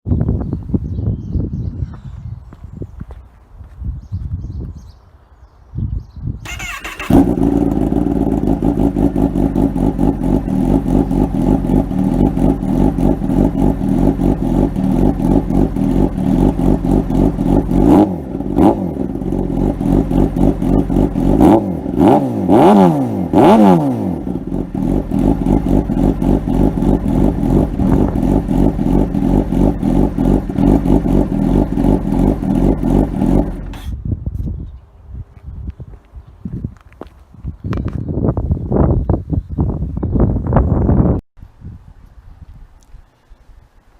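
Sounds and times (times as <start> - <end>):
motorcycle engine cranking: 6.4 - 13.1
motorcycle engine idling: 6.4 - 33.9
motorcycle engine revving: 6.4 - 34.0.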